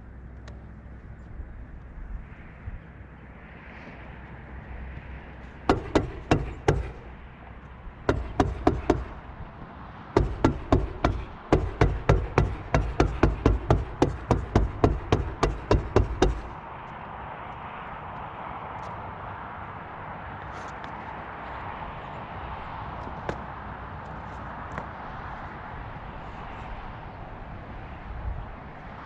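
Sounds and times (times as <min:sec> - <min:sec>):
hammer strikes on roof: 0:05.7 - 0:07.2, 0:08.0 - 0:09.3, 0:10.2 - 0:16.6.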